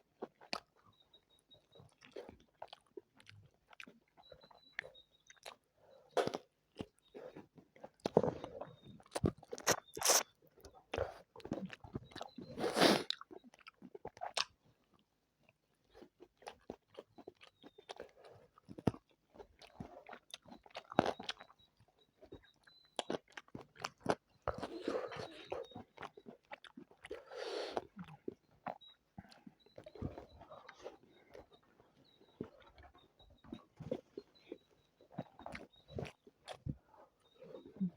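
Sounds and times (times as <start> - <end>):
person chewing food: 0.2 - 37.9
wet mouth clicks: 9.1 - 10.3.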